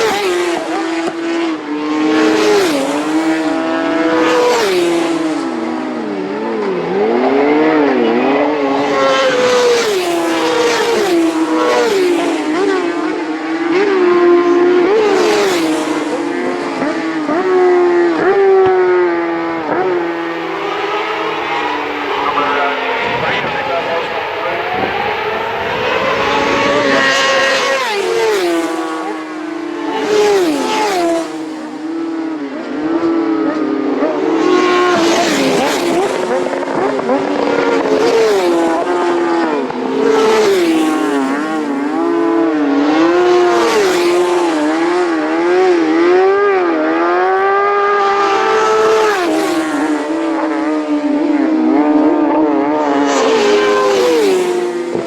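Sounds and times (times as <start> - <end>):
racing motorcycles passing: 0.0 - 55.0.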